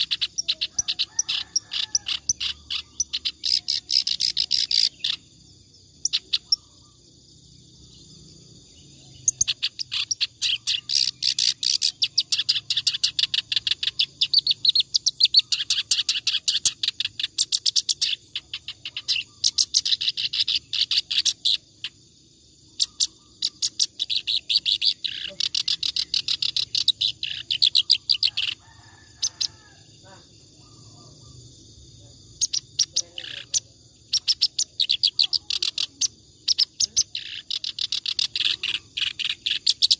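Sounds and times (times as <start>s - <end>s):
reed warbler singing: 0.0s - 7.0s, 8.8s - 22.0s, 22.7s - 29.6s, 32.2s - 39.9s.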